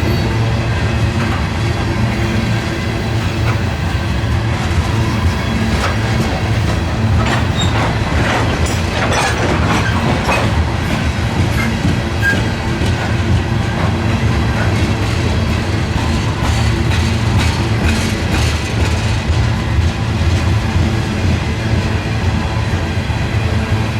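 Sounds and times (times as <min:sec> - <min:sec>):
wheels clacking over rail joints: 0:00.0 - 0:22.0
train rumbling past: 0:00.0 - 0:23.9
high wheel squeals: 0:02.1 - 0:13.2.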